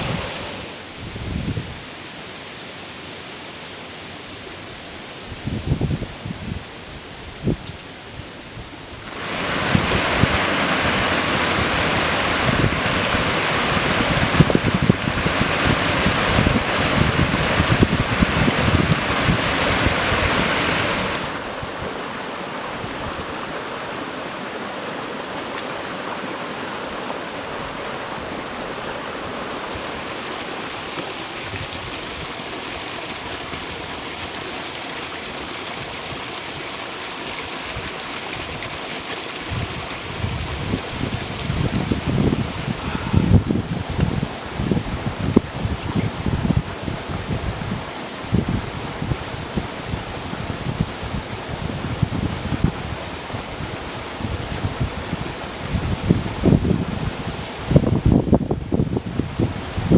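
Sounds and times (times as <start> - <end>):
wind rumble on microphone: 0.0 - 1.9, 5.3 - 23.8, 31.3 - 34.4, 35.7 - 59.9
stream water rushing: 0.0 - 59.9.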